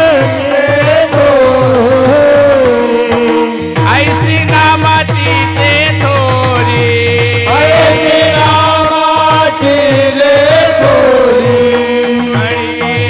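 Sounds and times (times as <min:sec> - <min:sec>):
drum strokes: 0:00.0 - 0:13.0
person singing wordless melody: 0:00.0 - 0:13.0
held drone tones: 0:07.5 - 0:13.0.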